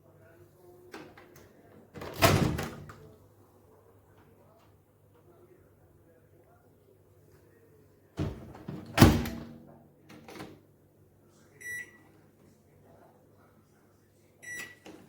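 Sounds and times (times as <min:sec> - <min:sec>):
microwave door clunking shut: 0:08.2 - 0:09.6.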